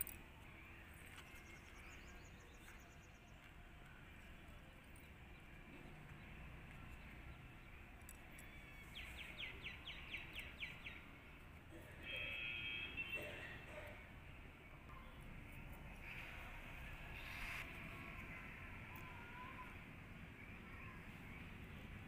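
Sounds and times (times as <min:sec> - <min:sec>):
faint outdoor background noise: 0:00.0 - 0:22.0
bird chirping: 0:04.9 - 0:11.1.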